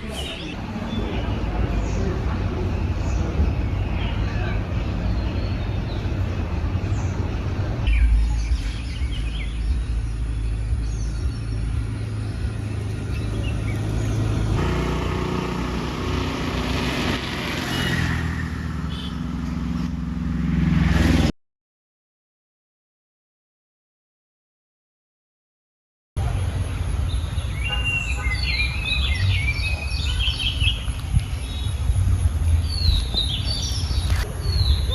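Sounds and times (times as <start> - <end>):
small birds chirping: 0.0 - 18.1, 26.2 - 34.9
steady low rumble: 0.5 - 14.6.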